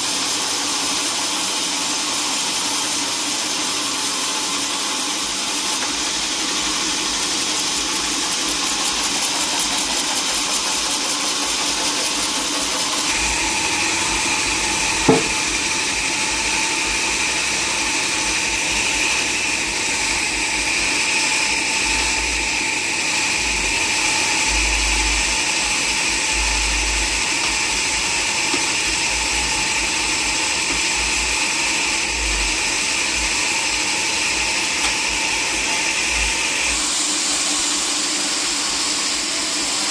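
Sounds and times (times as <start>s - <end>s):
saw cutting through log: 0.0s - 39.9s
sharp knock: 15.0s - 15.5s.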